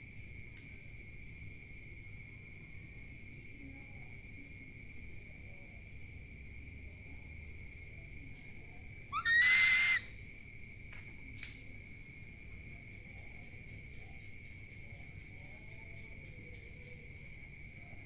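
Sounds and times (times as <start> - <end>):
night insects chorus: 0.0 - 18.0
owl screeching call: 9.1 - 10.1.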